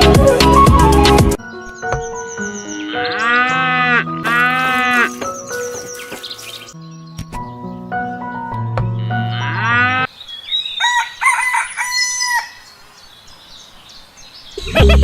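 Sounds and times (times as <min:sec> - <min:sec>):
background hiss: 0:10.1 - 0:15.0
rooster crowing: 0:10.8 - 0:12.7.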